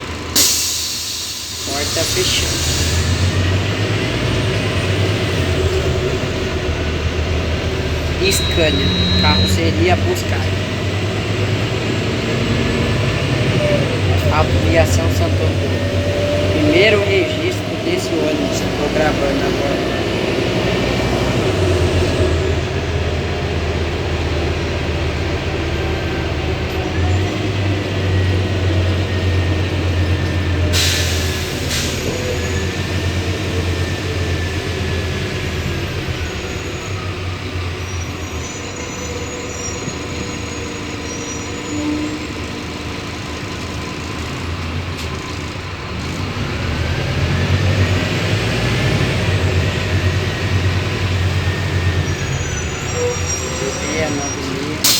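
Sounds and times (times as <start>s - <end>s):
bus engine drone: 0.0s - 54.9s
short hiss: 0.4s - 3.2s.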